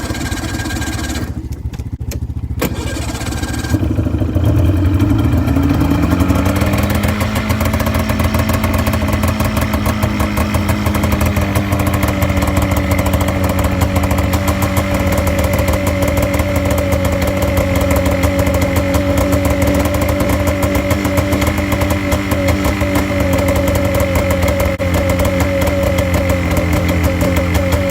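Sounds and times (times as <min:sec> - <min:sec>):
snowmobile engine running: 0:00.0 - 0:27.9.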